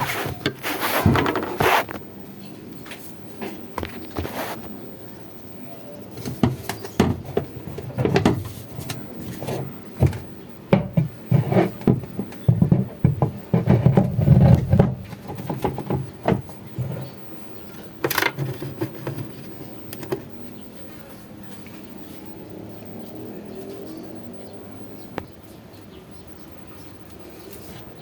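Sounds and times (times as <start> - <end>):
hard objects knocking: 0.0 - 2.0, 6.2 - 20.4.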